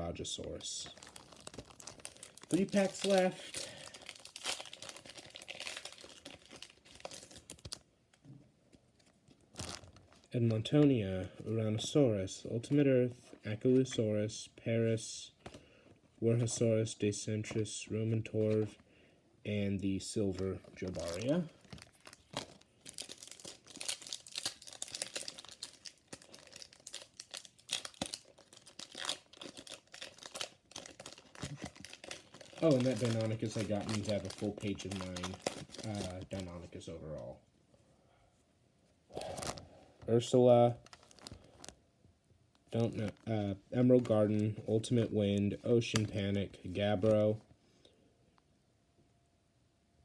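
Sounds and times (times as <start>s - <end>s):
wrapper crinkling as torn open: 0.8s - 7.9s, 9.0s - 10.3s, 20.8s - 37.3s, 39.2s - 39.6s, 40.8s - 41.8s.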